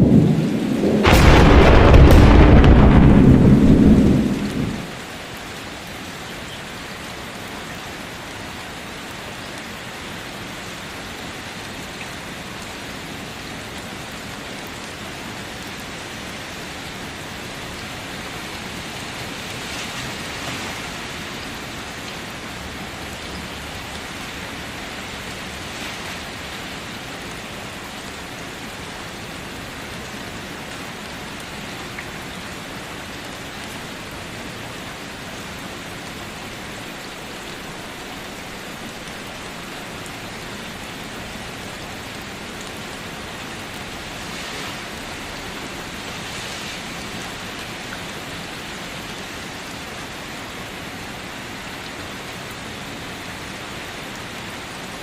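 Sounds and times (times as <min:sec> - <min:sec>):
thunder rumble: 0:00.0 - 0:05.0
steady rainfall: 0:00.0 - 0:55.0.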